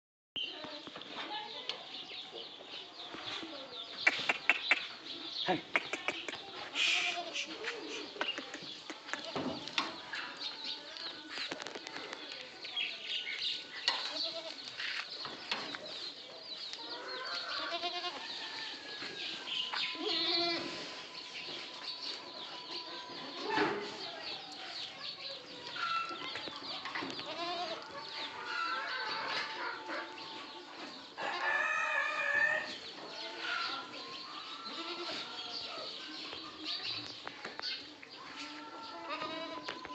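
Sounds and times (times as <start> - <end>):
goats bleating: 17.6 - 18.2, 20.0 - 20.7, 27.2 - 27.9, 34.7 - 35.3, 38.3 - 39.7.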